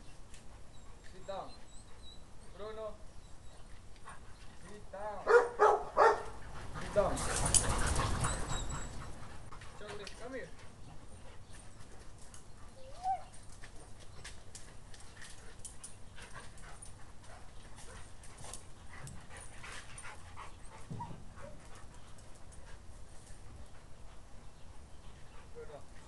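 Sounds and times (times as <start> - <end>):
dogs' claws clicking and scuffling: 3.6 - 26.0
dog whining: 7.9 - 9.2, 12.7 - 13.4.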